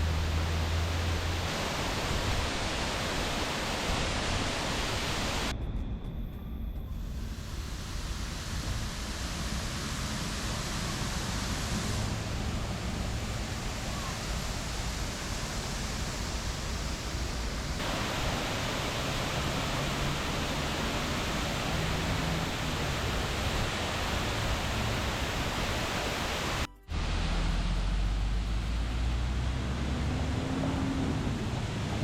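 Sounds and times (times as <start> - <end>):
waterfall rushing down rock: 0.0 - 5.5, 7.4 - 32.0.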